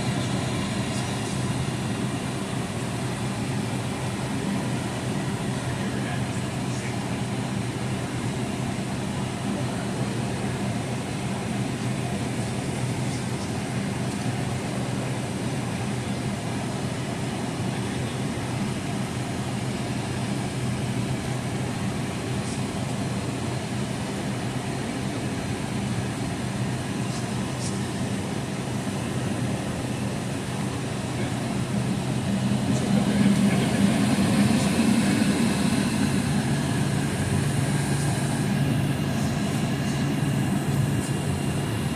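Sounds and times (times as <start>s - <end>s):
aircraft cabin drone: 0.0s - 41.9s
ventilation air rushing: 0.0s - 41.9s.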